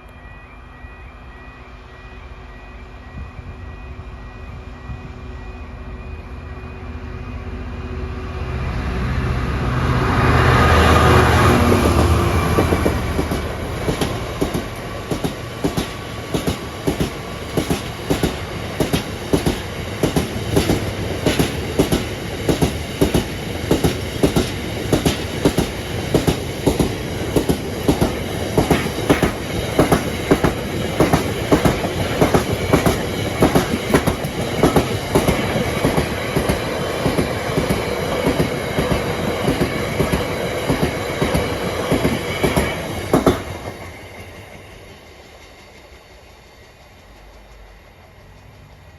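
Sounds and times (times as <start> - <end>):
diesel locomotive engine: 0.0 - 48.9
train wheels clickety-clack: 11.2 - 48.9.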